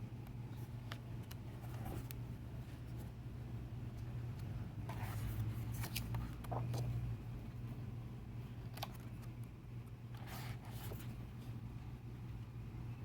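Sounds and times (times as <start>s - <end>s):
steady low hum: 0.0s - 13.0s
paper pages rustling: 4.9s - 7.0s, 10.2s - 11.2s.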